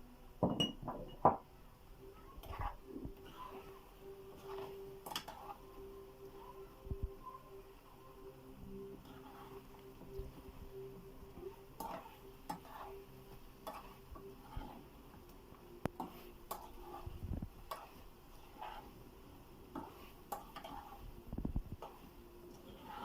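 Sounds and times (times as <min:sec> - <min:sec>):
metal spatula scraping a pan: 0:02.2 - 0:06.8, 0:08.7 - 0:10.6, 0:11.3 - 0:23.0.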